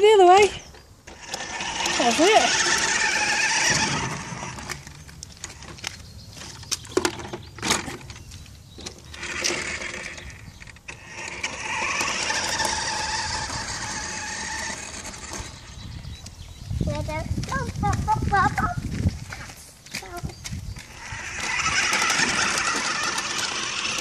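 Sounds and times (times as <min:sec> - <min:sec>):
toy truck electric motor whirring: 0:01.1 - 0:05.8, 0:08.8 - 0:15.8, 0:20.8 - 0:24.0.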